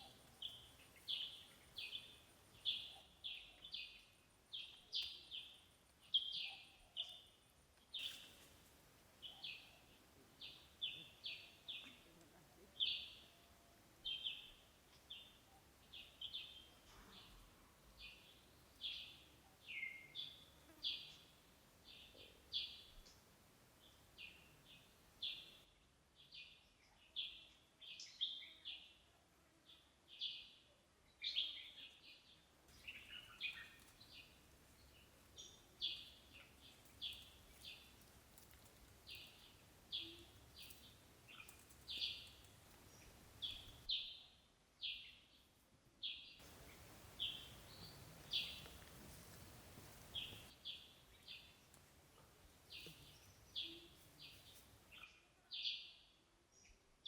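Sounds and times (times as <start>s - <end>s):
bird chirping: 0.0s - 8.4s, 18.0s - 29.0s, 29.7s - 38.0s, 39.0s - 45.4s, 46.0s - 51.7s, 52.7s - 56.8s
faint background noise: 0.0s - 57.0s.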